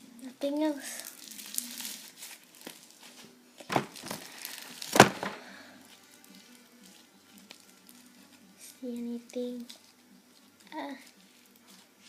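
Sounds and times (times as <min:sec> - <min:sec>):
slime squishing and crackling: 0:00.8 - 0:03.1, 0:03.8 - 0:05.3, 0:06.1 - 0:08.1.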